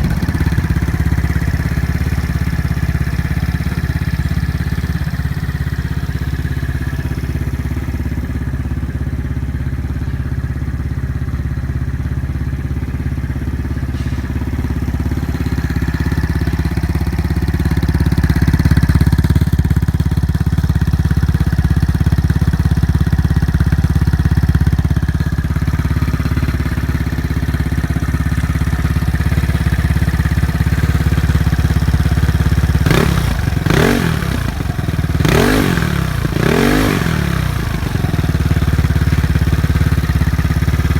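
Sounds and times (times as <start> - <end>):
scooter exhaust note: 0.0 - 40.9.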